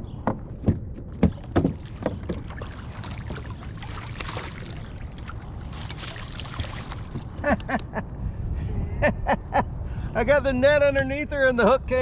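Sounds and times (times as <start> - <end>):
knocks against kayak: 0.3 - 3.4
water splashing: 1.3 - 7.5.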